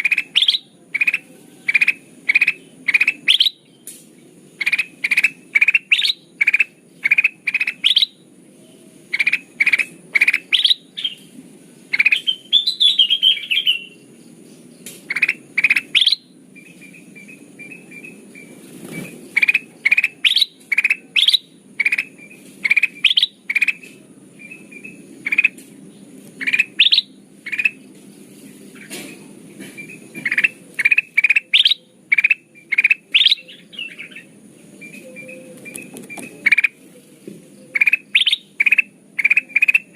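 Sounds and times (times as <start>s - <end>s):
bird warbling trill: 0.0s - 3.7s, 4.6s - 8.2s, 9.1s - 11.2s, 11.9s - 14.0s, 15.1s - 23.8s, 24.4s - 25.6s, 26.4s - 27.8s, 29.8s - 36.8s, 37.7s - 39.9s
bird whistled calls: 0.0s - 3.9s, 4.6s - 11.3s, 11.9s - 14.0s, 15.1s - 18.5s, 19.3s - 23.8s, 26.4s - 27.8s, 29.8s - 36.8s, 37.6s - 39.9s
bird chattering: 0.0s - 25.7s, 26.3s - 36.9s, 37.6s - 39.9s.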